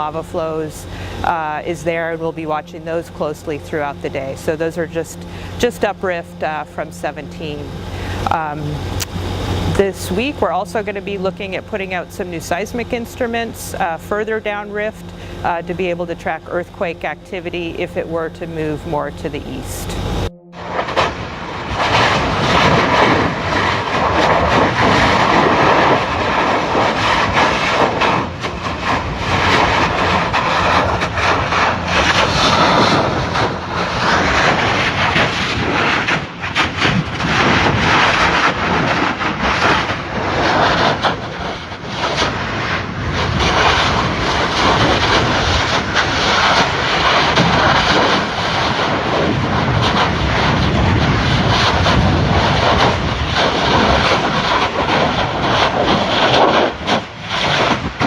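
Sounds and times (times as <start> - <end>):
lava eruption roaring: 19.9 - 58.0
lava crackles and bursts: 20.6 - 58.0.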